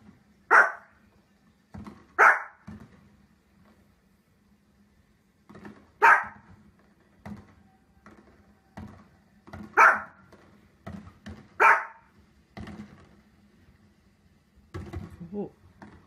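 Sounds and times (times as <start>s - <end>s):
small dog barking: 0.5s - 1.0s, 2.2s - 2.6s, 6.0s - 6.5s, 9.7s - 10.2s, 11.6s - 12.1s.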